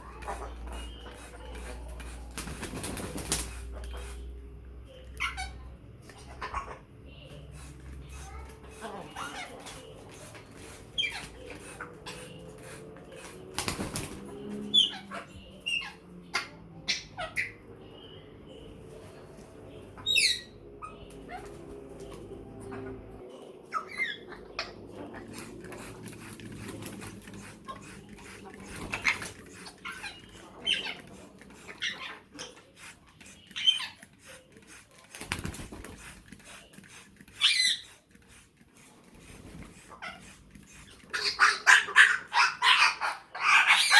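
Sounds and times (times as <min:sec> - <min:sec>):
parrot wings flapping: 0:02.0 - 0:03.6, 0:13.2 - 0:14.3, 0:35.0 - 0:36.4
parrots squawking and whistling: 0:14.6 - 0:17.6, 0:19.9 - 0:23.0, 0:23.6 - 0:25.9, 0:27.4 - 0:34.4, 0:37.3 - 0:38.1, 0:39.7 - 0:43.9
parrot whistles and squawks: 0:37.4 - 0:37.9.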